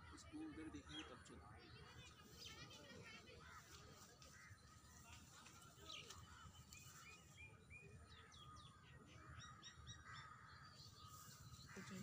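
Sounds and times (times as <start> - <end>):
wild bird calls: 8.3 - 12.0.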